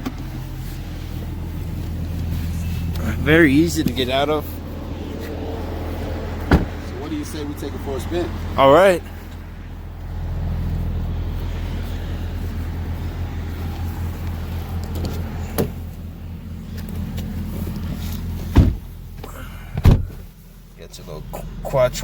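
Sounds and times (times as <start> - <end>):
car engine starting and idling: 0.0 - 22.0
loud thump: 6.5 - 6.8, 18.5 - 19.0, 19.8 - 20.3.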